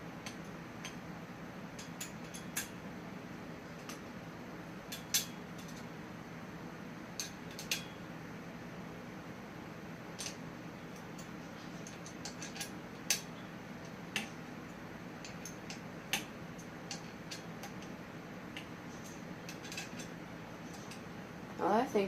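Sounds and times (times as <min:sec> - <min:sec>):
steady low hum: 0:00.0 - 0:22.0
metallic clicks of tools and parts: 0:01.8 - 0:02.8, 0:04.9 - 0:05.9, 0:07.2 - 0:08.0, 0:10.2 - 0:10.4, 0:11.0 - 0:21.1.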